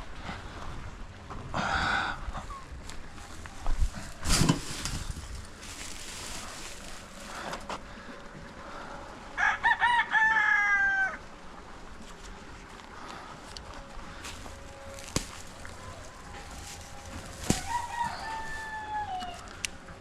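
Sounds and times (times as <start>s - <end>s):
rooster crowing: 9.3s - 11.3s, 15.8s - 19.9s.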